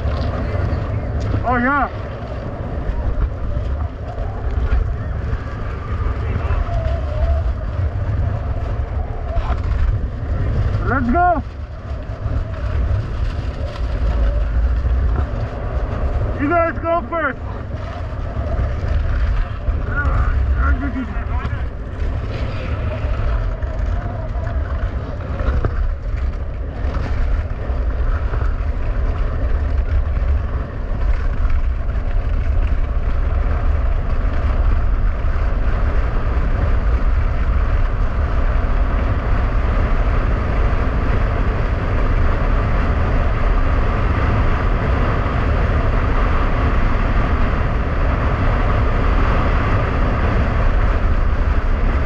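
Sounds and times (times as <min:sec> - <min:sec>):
skis scraping over ice: 0:00.0 - 0:52.0
wind buffeting microphone: 0:00.0 - 0:52.0.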